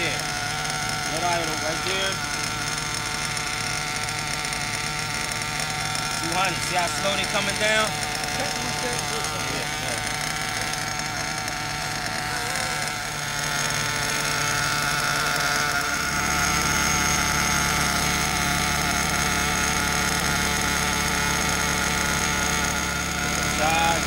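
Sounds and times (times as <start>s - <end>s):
model engine idling: 0.0s - 24.0s.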